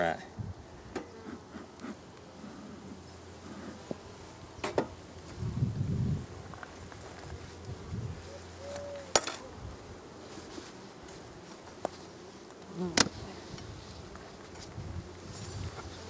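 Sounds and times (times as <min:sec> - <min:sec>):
honey bees buzzing: 0:00.0 - 0:16.0
single bee droning past: 0:07.2 - 0:16.0.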